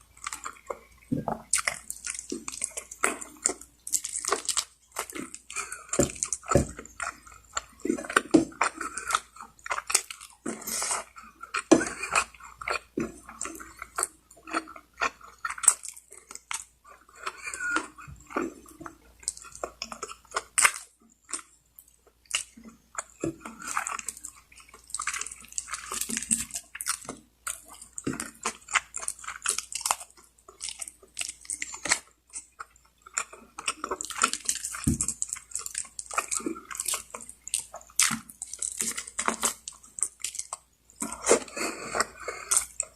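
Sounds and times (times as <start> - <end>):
person chewing chicken: 0.0 - 42.9.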